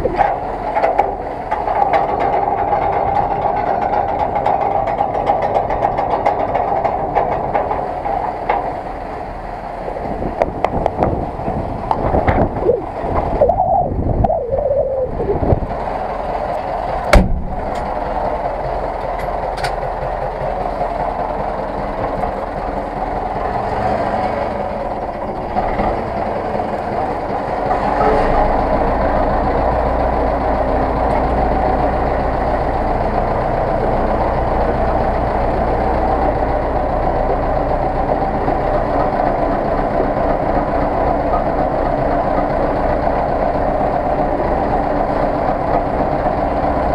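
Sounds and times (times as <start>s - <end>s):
tractor diesel engine running: 0.0s - 46.9s
sharp engine knock: 17.1s - 17.9s.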